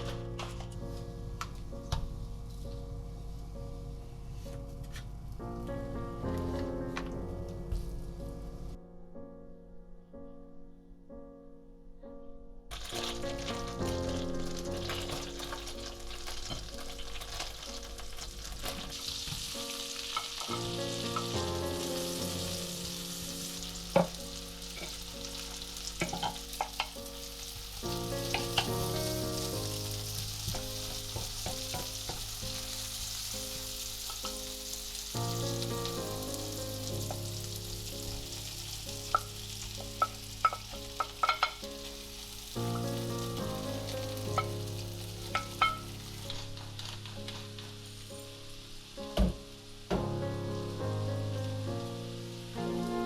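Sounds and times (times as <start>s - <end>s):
soft background music: 0.0s - 53.0s
food sizzling in a pan: 12.7s - 53.0s.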